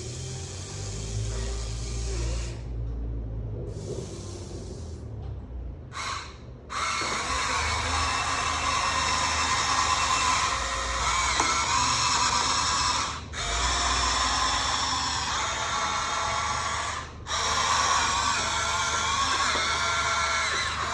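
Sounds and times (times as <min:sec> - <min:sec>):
drill-like whir: 0:00.0 - 0:02.7, 0:06.0 - 0:20.9
electric motors whining: 0:00.0 - 0:03.0, 0:05.9 - 0:20.9.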